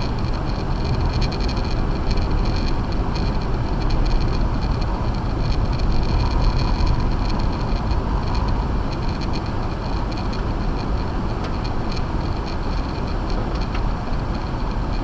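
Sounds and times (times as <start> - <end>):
car engine: 0.0 - 15.0
tire and road noise rumble: 0.0 - 15.0.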